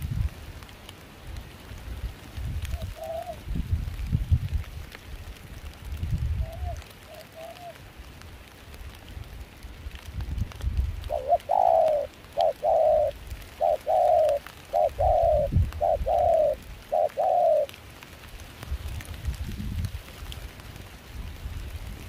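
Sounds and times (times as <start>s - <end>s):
low rumble of wind and rain: 0.0s - 22.0s
dove cooing: 2.7s - 3.5s, 6.4s - 7.8s, 11.0s - 17.7s.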